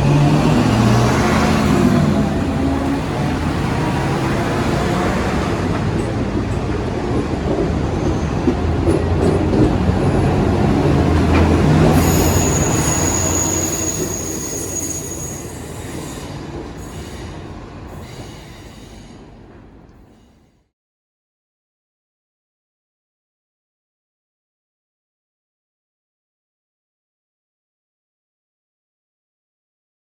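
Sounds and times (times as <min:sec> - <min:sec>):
train rumbling past: 0:00.0 - 0:20.5
high wheel squeal: 0:11.9 - 0:19.2.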